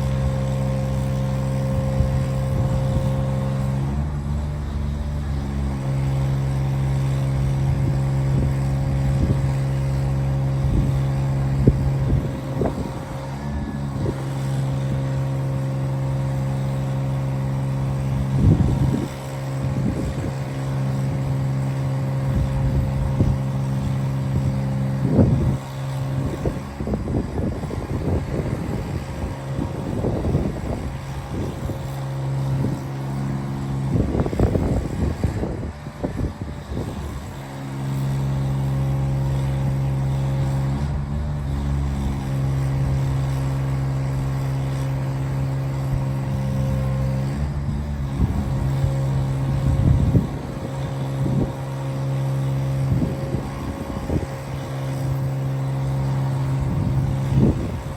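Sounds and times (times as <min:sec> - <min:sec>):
wind buffeting microphone: 0:00.0 - 0:57.9.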